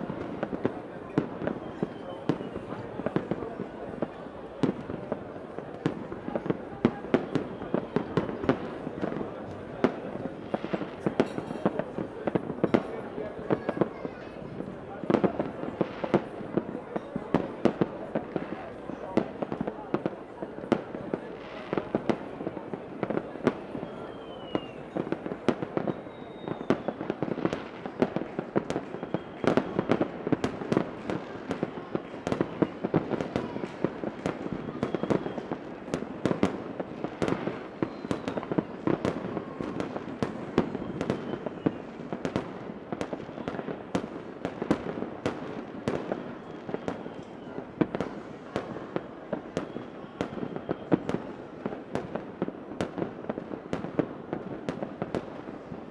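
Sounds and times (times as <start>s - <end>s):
fireworks bangs and crackles: 0.0s - 55.9s
fireworks whistle: 1.3s - 3.2s, 7.0s - 8.9s, 23.5s - 36.6s, 37.2s - 42.1s, 45.9s - 51.4s.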